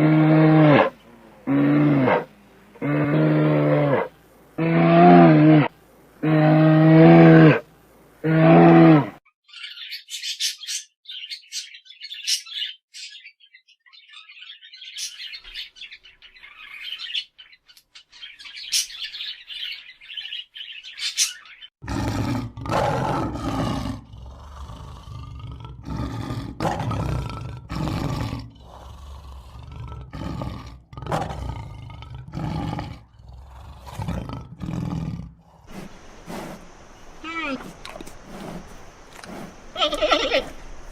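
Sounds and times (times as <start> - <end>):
deep lowing calls: 0.0 - 9.2, 21.9 - 40.9
loud low roaring calls: 0.0 - 9.2, 21.8 - 40.9.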